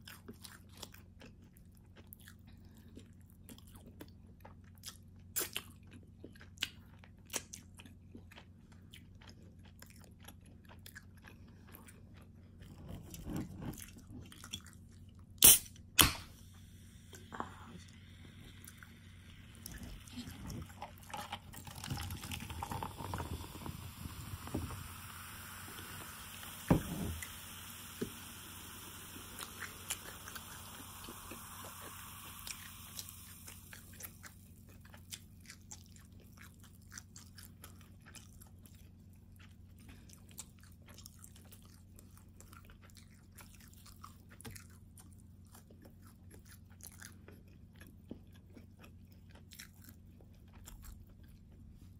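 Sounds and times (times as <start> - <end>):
chewing and biting: 0.0 - 16.1, 29.4 - 51.9.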